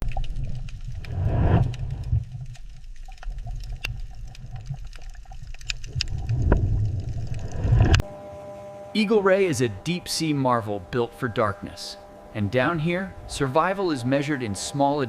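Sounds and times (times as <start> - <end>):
faint clicks: 0.0 - 8.0
underwater rumble of moving water: 0.0 - 8.0.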